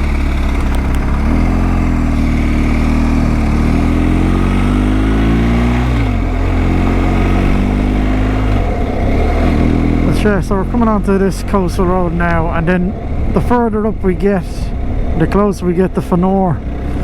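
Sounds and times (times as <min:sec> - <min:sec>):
motorcycle engine accelerating: 0:00.0 - 0:17.0
wind noise: 0:05.4 - 0:16.2.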